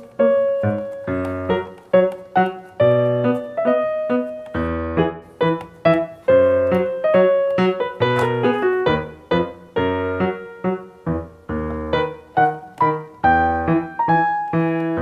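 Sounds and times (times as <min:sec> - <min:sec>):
bouncy piano tune: 0:00.0 - 0:15.0.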